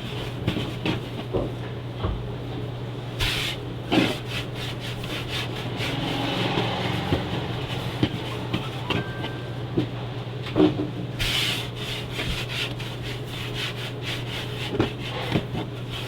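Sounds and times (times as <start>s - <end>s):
rough rubbing and scraping: 3.2s - 9.6s.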